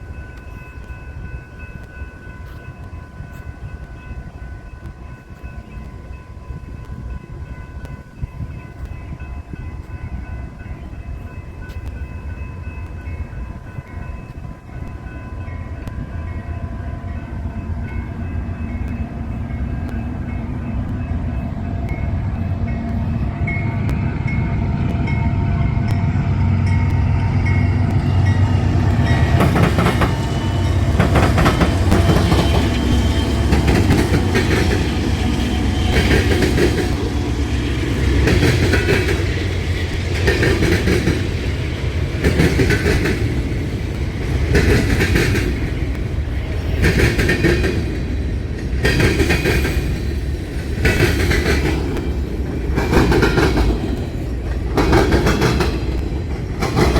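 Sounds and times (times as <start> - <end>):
freight train rumble: 0.0 - 56.9
train wheels clacking: 17.2 - 56.9.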